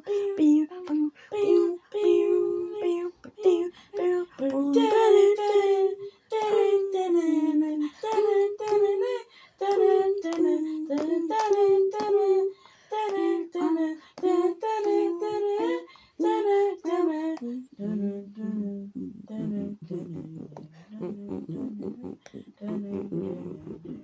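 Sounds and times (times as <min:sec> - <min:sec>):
person singing wordless notes: 0:15.2 - 0:24.0.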